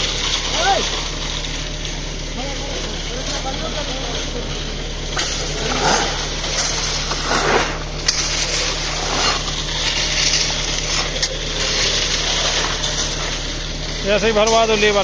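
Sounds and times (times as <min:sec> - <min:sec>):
machine engine humming: 0:00.0 - 0:15.0
scraping and clattering: 0:05.2 - 0:15.0.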